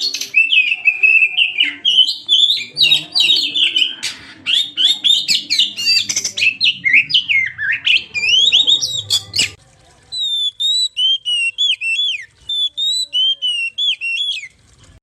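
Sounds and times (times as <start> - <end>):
bird chirps and trills: 0.0 - 9.6, 10.2 - 14.6
repeated whistled bird notes: 4.5 - 9.6, 10.2 - 14.6.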